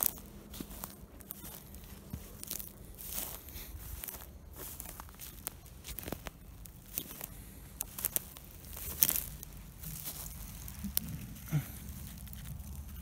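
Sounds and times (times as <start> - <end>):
footsteps on dry leaves and twigs: 0.0 - 13.0.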